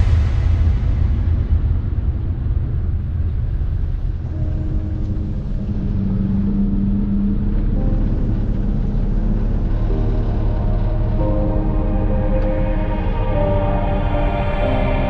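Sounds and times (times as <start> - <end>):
boat motor rumbling: 4.4 - 15.0.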